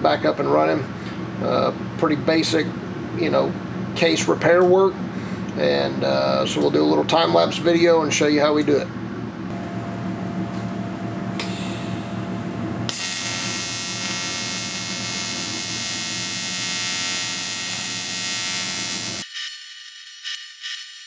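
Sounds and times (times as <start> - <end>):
welder arc buzzing: 9.5 - 21.0.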